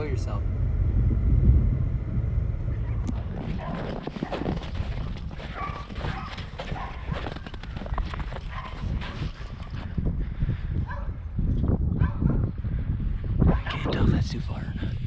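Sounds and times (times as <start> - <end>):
footsteps crunching in snow: 3.1 - 9.9.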